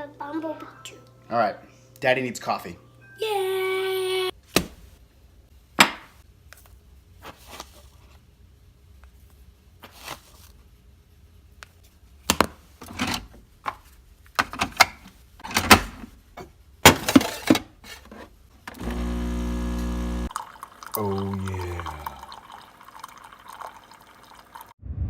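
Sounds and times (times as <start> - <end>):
kitchen knocks and clatters: 12.3 - 18.2.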